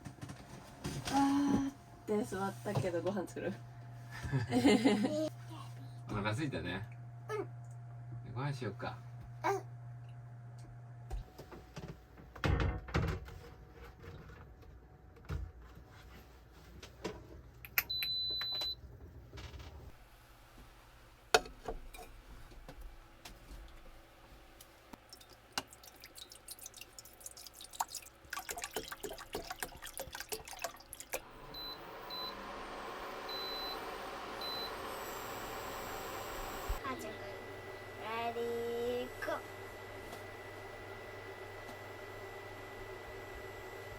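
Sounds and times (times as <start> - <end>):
electric appliance humming: 0.0 - 13.1, 30.8 - 43.9
knocks and clatter of handling things: 11.2 - 17.4.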